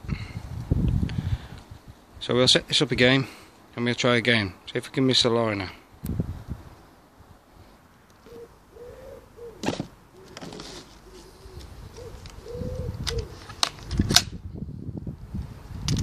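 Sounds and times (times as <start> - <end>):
dove cooing: 8.2 - 13.6.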